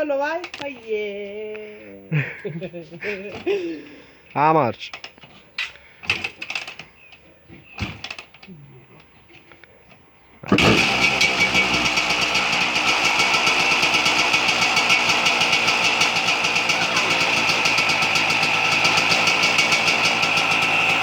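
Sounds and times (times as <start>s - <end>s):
motocross bike engine idling: 10.5s - 21.0s.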